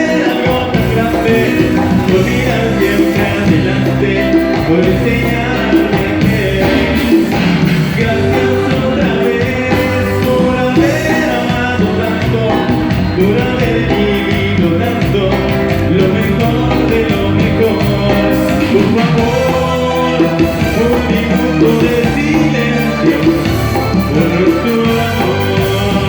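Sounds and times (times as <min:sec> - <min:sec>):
live cumbia band music: 0:00.0 - 0:26.0.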